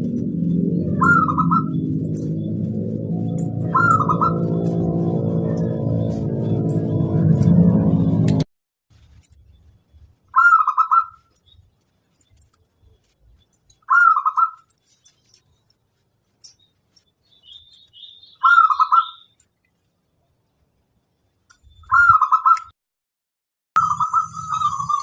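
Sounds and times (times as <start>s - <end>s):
dove cooing: 0.0s - 5.7s.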